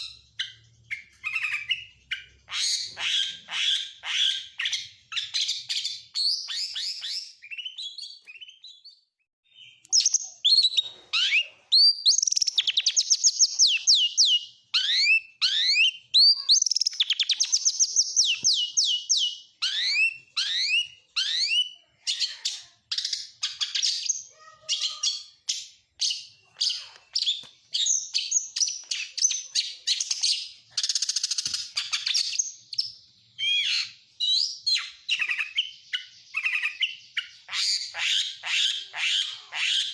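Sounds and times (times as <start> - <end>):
magpie-robin singing varied song: 0.0 - 39.9.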